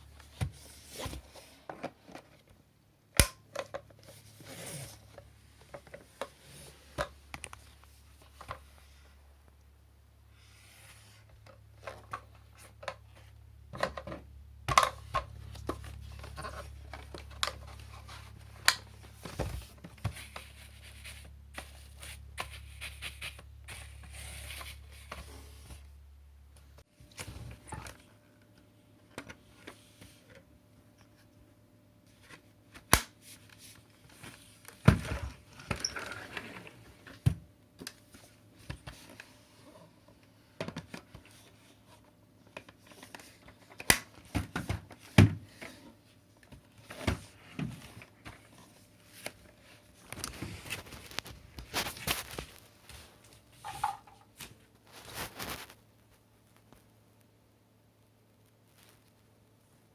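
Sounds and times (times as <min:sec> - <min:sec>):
scraping and rustling: 0:54.8 - 0:55.8.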